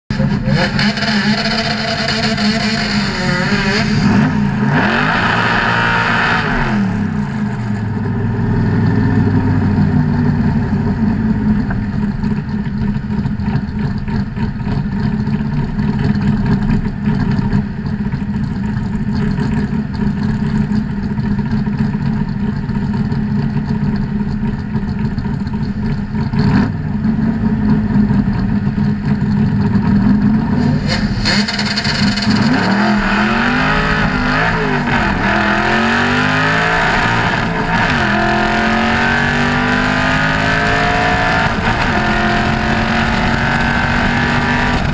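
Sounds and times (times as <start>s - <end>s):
engine revving: 0.1s - 9.8s, 26.2s - 27.9s, 29.5s - 44.9s
car engine idling: 0.1s - 44.9s.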